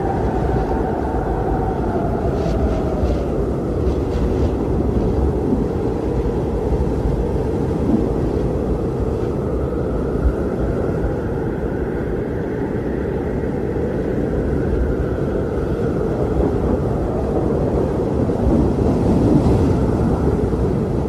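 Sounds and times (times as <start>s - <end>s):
strong wind blowing: 0.0s - 21.0s.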